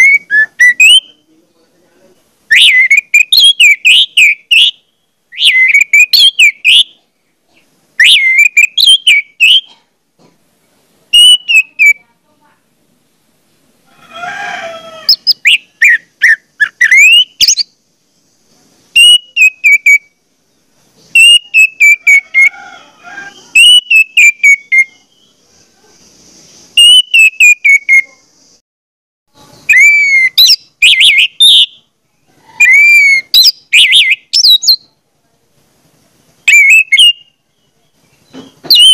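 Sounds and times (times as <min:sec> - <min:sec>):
shrill whistled phrases: 0:00.0 - 0:01.3, 0:02.5 - 0:07.0, 0:08.0 - 0:09.7, 0:11.1 - 0:12.0, 0:15.1 - 0:17.7, 0:19.0 - 0:20.1, 0:21.1 - 0:22.5, 0:23.3 - 0:25.1, 0:26.8 - 0:28.2, 0:29.6 - 0:31.8, 0:32.6 - 0:34.8, 0:36.5 - 0:37.3, 0:38.6 - 0:38.9.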